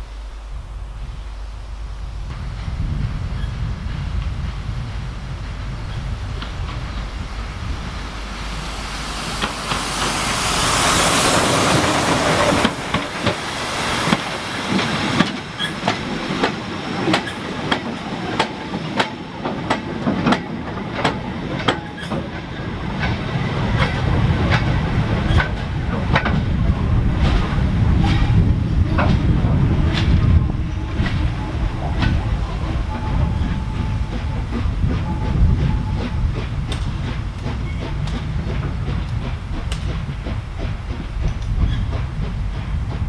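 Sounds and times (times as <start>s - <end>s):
loud steam hiss: 0.0s - 43.0s
low train rumble: 0.0s - 43.0s
train wheels clicking over rail joints: 2.3s - 43.0s.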